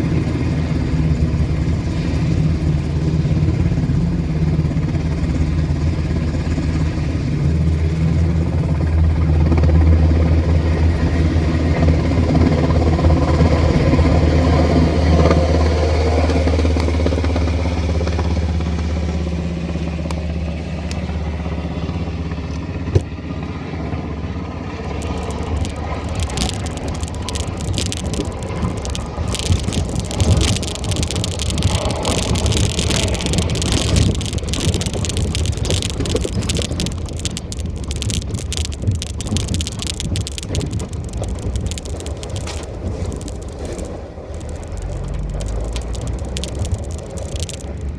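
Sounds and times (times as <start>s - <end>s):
low engine drone: 0.0s - 47.9s
crackling rustling noise: 24.8s - 47.9s.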